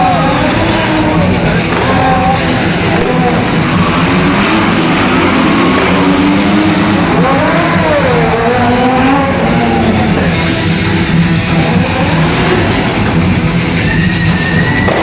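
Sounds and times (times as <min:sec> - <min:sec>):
car engines revving: 0:00.0 - 0:15.0
guitar-driven show music: 0:00.0 - 0:15.0.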